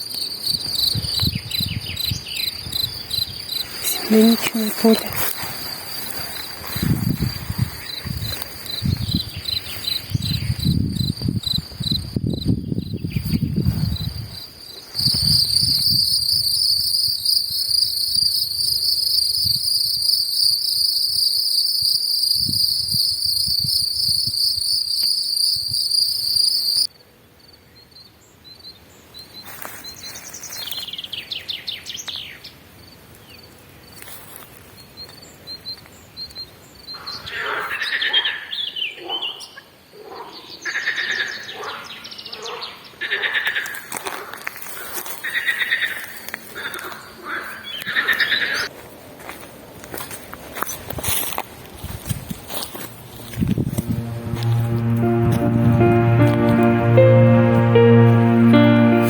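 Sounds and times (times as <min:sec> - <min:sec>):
insects singing shrill chorus: 0:00.1 - 0:26.9.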